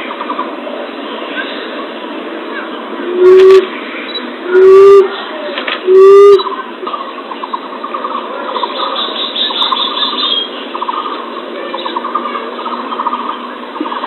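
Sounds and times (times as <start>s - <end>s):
recording hiss: 0.0s - 14.0s
recorded bird trills: 5.9s - 14.0s.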